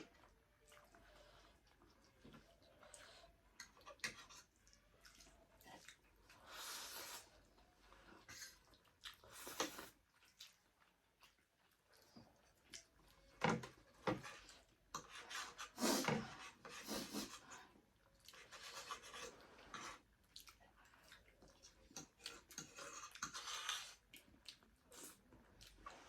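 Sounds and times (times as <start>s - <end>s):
chewing and mouth noise: 0.0s - 6.5s, 7.1s - 13.3s, 19.3s - 26.0s.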